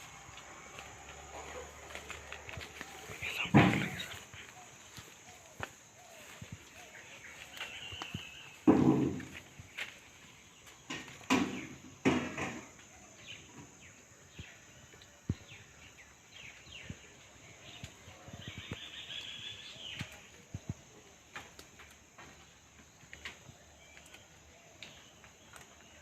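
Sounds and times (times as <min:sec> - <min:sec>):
birds chirping: 0:00.0 - 0:26.0
short thumps or rustles: 0:03.1 - 0:04.5.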